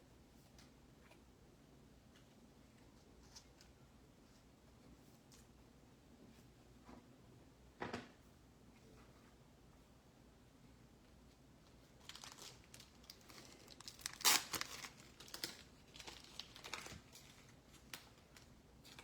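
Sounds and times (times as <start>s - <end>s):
plastic packaging crinkling and tearing: 12.0s - 19.0s.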